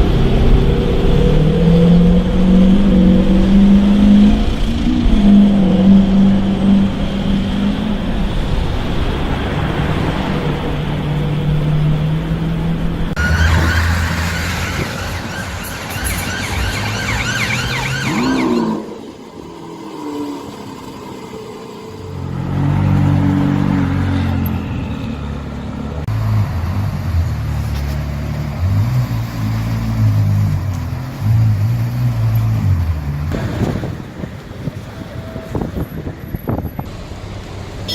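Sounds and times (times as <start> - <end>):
wavering emergency siren: 0.0 - 12.5, 13.1 - 26.1
car engines humming in traffic: 0.0 - 37.9.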